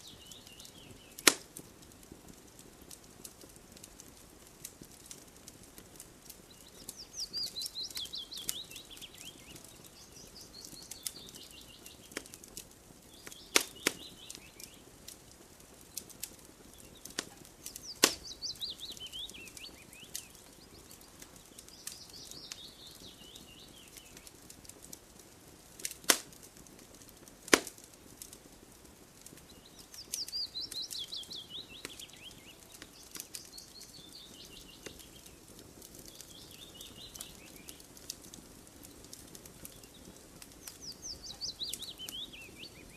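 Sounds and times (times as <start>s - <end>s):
fire popping: 0.0s - 42.9s
wood fire crackling: 0.0s - 42.9s
songbird trilling: 6.7s - 12.0s, 17.7s - 21.1s, 29.5s - 35.2s, 40.7s - 42.9s.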